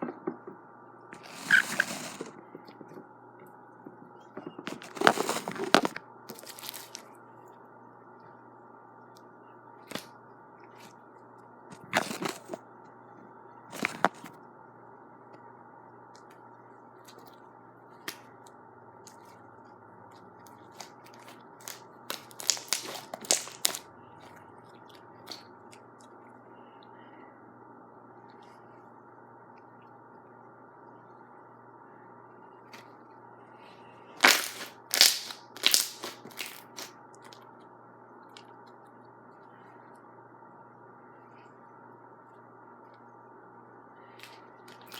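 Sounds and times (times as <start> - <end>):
slime crackling and popping: 20.8 - 23.8, 34.2 - 37.4.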